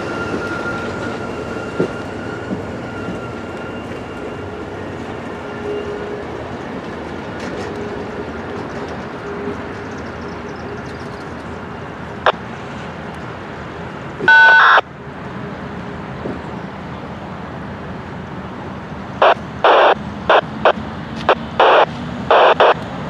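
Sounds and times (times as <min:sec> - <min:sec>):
train wheels rumbling on rail: 0:00.0 - 0:23.0
short loud tone: 0:14.3 - 0:14.8.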